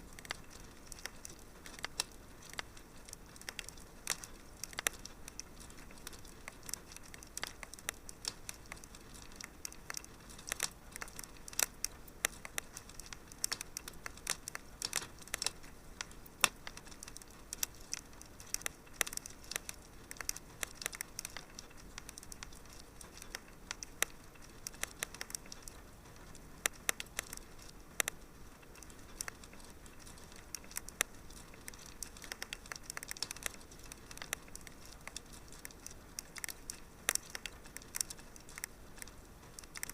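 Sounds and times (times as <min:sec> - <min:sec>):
steady low hiss: 0:00.0 - 0:39.9
wood fire crackling: 0:00.0 - 0:39.9.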